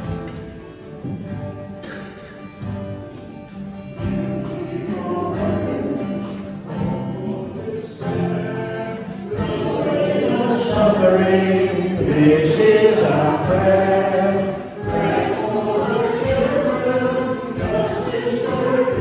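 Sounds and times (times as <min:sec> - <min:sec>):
acoustic guitar: 0:00.0 - 0:19.0
congregation singing a hymn: 0:03.1 - 0:19.0.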